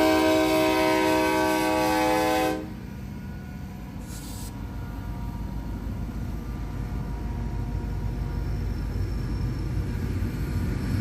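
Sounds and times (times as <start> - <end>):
diesel locomotive horn: 0.0 - 3.8
passing train rumble: 0.0 - 11.0
brief hiss: 4.0 - 4.7.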